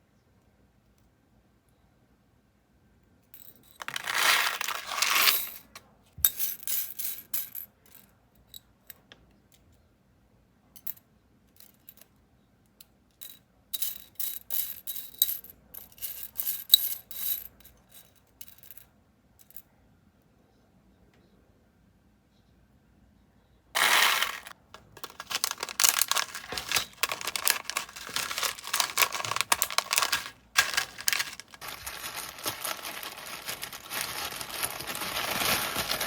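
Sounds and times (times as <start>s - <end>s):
small hard items clinking: 3.4s - 7.0s, 23.8s - 36.0s
packaging rustling: 3.8s - 5.3s, 23.8s - 36.0s.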